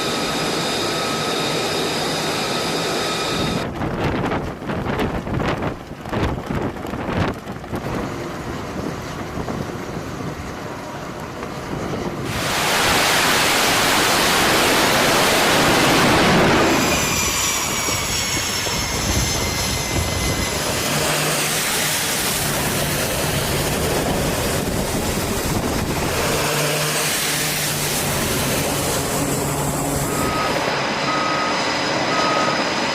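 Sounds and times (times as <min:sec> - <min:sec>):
high whining tones: 0:00.0 - 0:03.7, 0:12.2 - 0:32.9
jet engine rush: 0:00.0 - 0:32.9.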